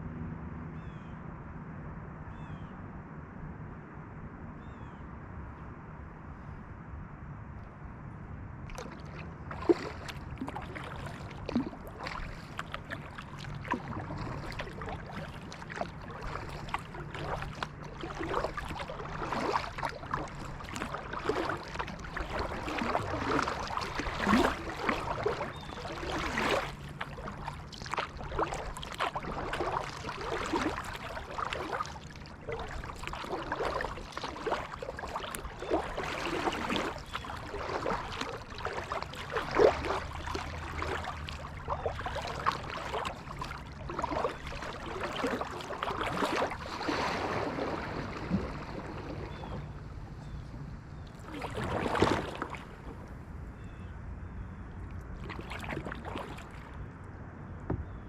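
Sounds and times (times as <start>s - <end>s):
water splashing and dripping: 8.7s - 50.4s, 51.0s - 53.0s, 55.2s - 56.7s
paddle strokes through water: 8.7s - 58.0s.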